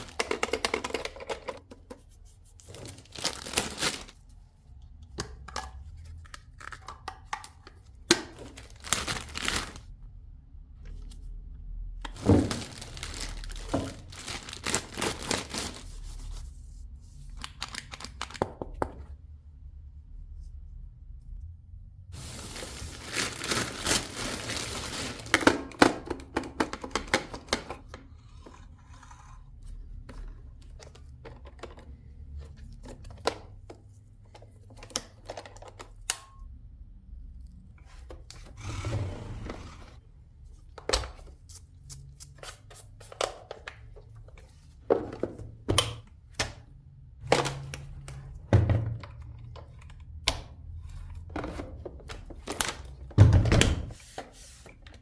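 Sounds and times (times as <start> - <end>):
plastic parts clicking and thunking: 0.0 - 2.0.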